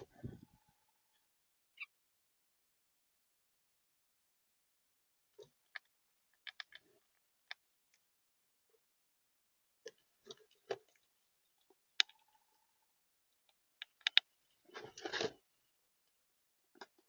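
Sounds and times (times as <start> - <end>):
birds pecking at a feeder: 5.4 - 7.6.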